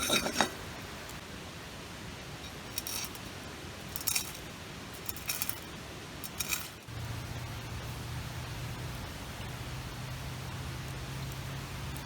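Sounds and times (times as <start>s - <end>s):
steady low hum: 0.0s - 12.0s
metal kitchen tool snipping: 6.2s - 6.8s.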